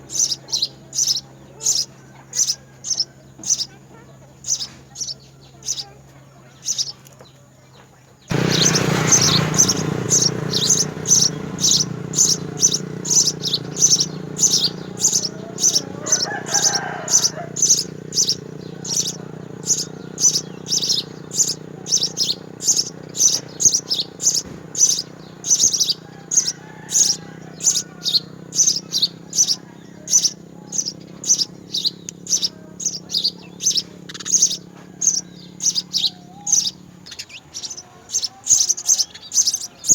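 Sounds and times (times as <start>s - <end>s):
sparrow chirping: 0.0s - 39.9s
steady low hum: 8.3s - 37.8s.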